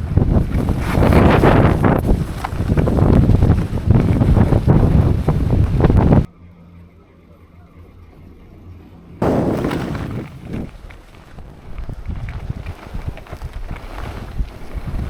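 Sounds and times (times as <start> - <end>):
strong wind buffeting microphone: 0.0 - 6.3, 9.2 - 15.0
faint low hum: 3.8 - 12.6.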